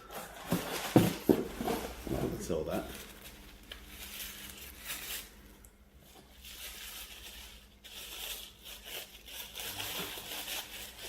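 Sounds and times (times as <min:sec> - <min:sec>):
paper tearing and crinkling: 0:02.9 - 0:05.4, 0:06.4 - 0:11.0.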